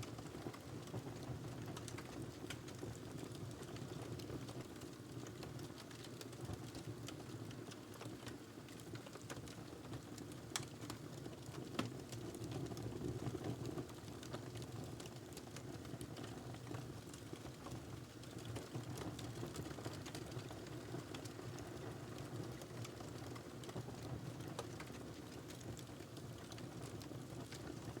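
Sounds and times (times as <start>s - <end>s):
wood fire crackling: 15.3s - 28.0s.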